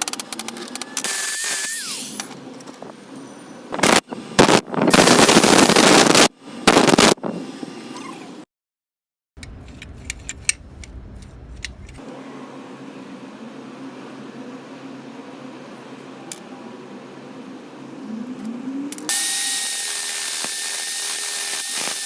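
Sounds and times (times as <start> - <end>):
belt grinder grinding: 0.0 - 2.3, 19.0 - 22.0
low hum: 9.4 - 15.1.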